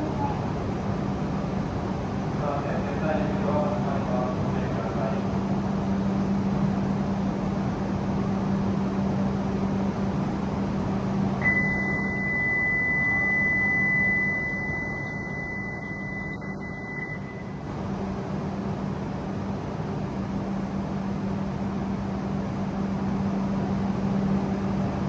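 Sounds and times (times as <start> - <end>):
stopped train humming: 0.0 - 25.0
high-pitched beep: 11.4 - 17.6.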